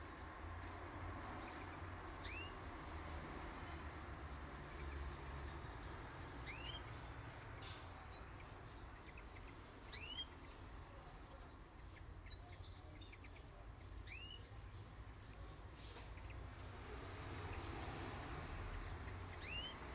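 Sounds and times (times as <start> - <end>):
songbirds chirping: 0.0 - 19.9.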